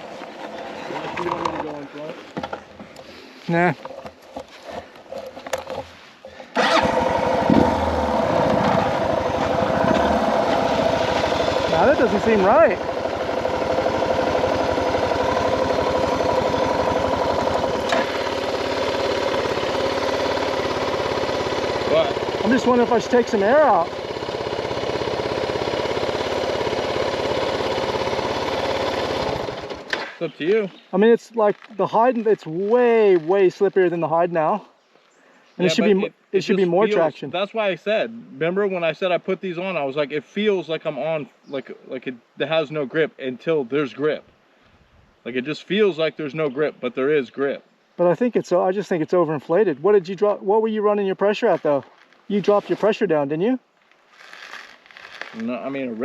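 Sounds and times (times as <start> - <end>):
motorcycle engine idling: 6.2 - 29.9.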